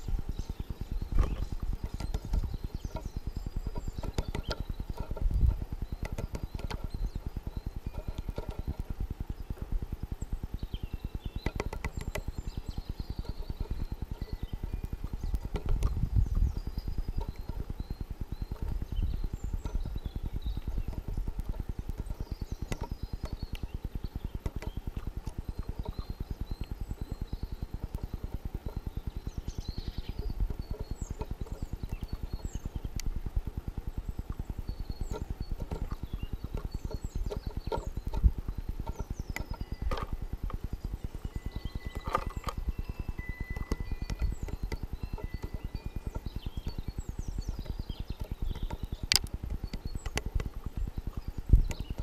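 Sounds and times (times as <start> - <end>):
small birds chirping: 0.0 - 52.0
woodpecker knocking: 0.0 - 52.0
sharp clicks: 34.2 - 52.0.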